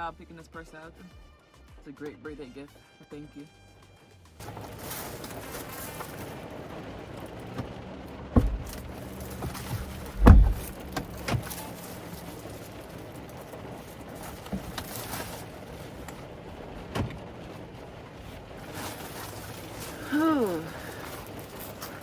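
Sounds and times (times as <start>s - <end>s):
low steady hum: 4.4s - 22.0s
knocks and thumps: 7.4s - 17.6s.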